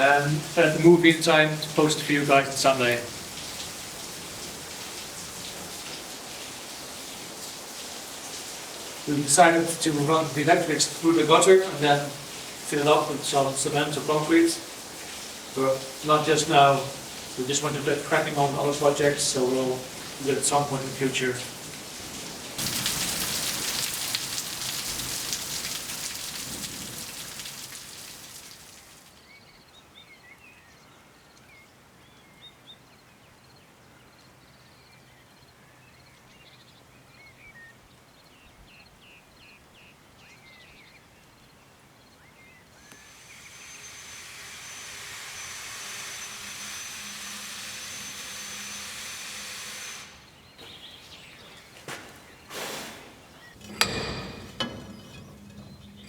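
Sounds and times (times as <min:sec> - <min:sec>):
heavy rain hissing: 0:00.0 - 0:29.1, 0:42.8 - 0:56.0
small birds chirping: 0:28.4 - 0:44.0, 0:50.2 - 0:56.0
steady hiss with high whistle: 0:42.8 - 0:50.3.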